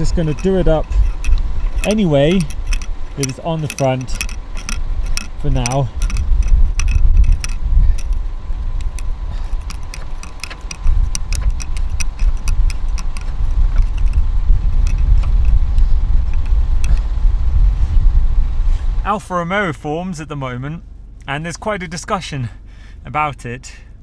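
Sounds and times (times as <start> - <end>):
small metallic clicks and rattles: 0.0 - 17.3
heavy low rumble: 0.0 - 24.0.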